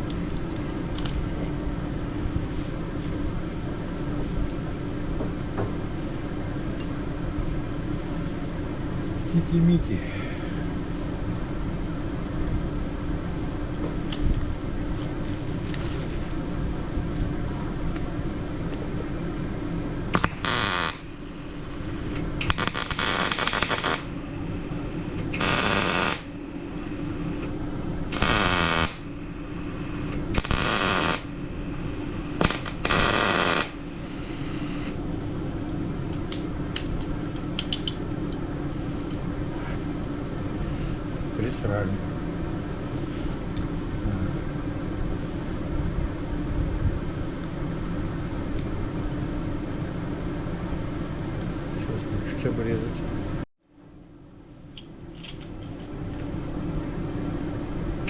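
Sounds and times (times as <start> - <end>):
steady hum: 9.8 - 36.7
electric welder bursts: 20.1 - 27.5, 28.1 - 35.0.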